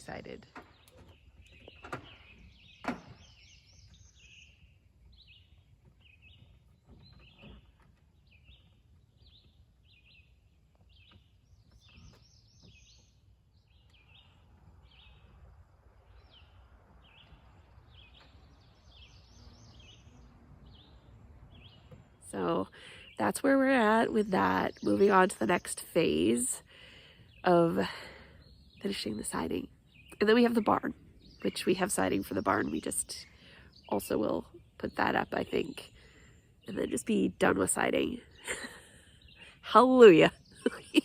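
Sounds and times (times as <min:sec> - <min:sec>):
bird chirping: 0:00.0 - 0:41.0
low outdoor rumble: 0:13.4 - 0:26.6.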